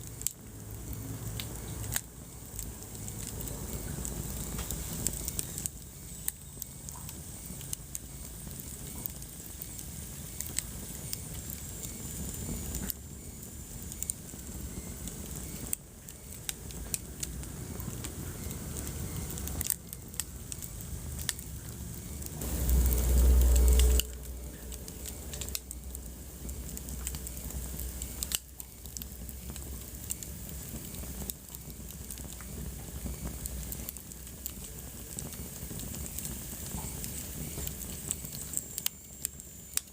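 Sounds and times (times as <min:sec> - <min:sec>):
wood fire crackling: 0:00.0 - 0:39.9
loud low rumble: 0:22.4 - 0:27.9.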